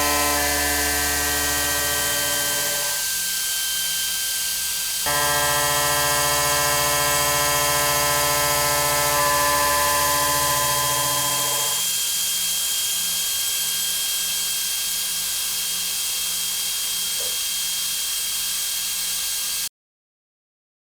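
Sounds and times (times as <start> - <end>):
machine tool cutting tone: 0.0 - 3.2, 5.1 - 11.9.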